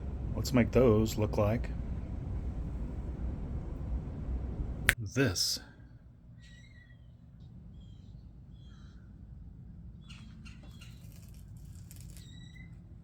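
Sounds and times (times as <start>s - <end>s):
steady low rumble: 0.0s - 5.2s.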